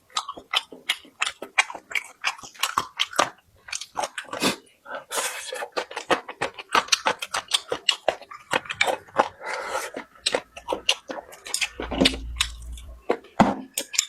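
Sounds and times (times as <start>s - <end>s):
person chewing wetly: 0.0s - 14.0s
brief low rumble: 11.8s - 13.0s.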